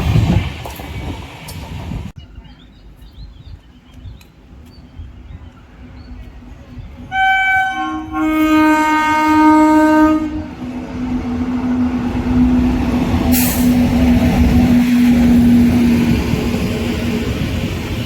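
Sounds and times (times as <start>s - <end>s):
train rumbling past: 0.0s - 3.4s, 4.4s - 18.0s
locomotive horn blasts: 7.1s - 10.6s.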